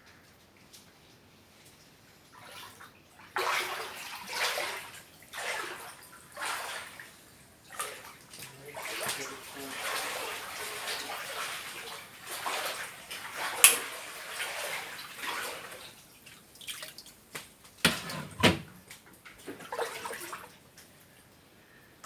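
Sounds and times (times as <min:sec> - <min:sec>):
water splashing and sloshing: 0:01.6 - 0:21.3.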